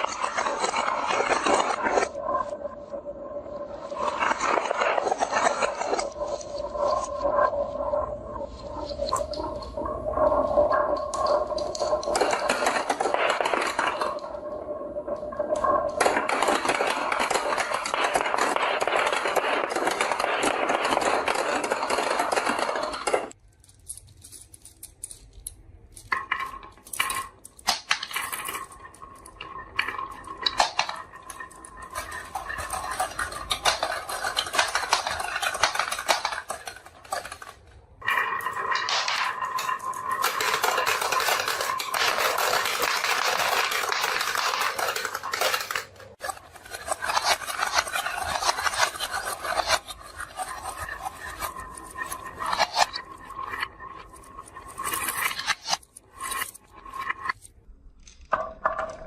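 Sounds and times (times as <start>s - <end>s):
marbles rattling down a track: 0.0s - 23.8s, 25.6s - 57.4s.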